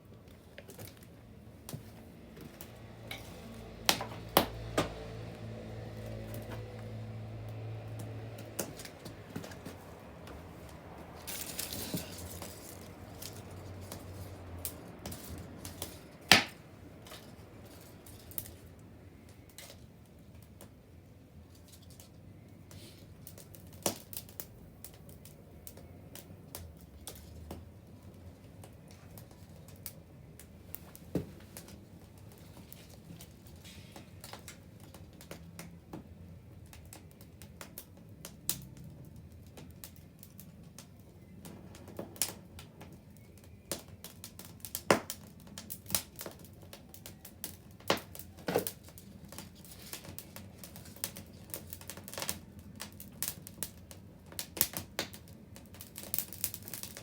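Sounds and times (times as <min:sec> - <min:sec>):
bonfire crackling and popping: 0:00.0 - 0:57.0
fire hissing: 0:01.6 - 0:19.8.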